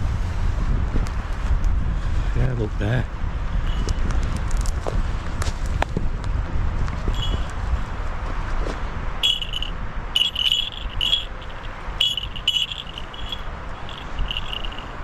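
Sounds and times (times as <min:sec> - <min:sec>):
wind rumble on microphone: 0:00.0 - 0:15.0
small bells tinkling: 0:09.2 - 0:15.0.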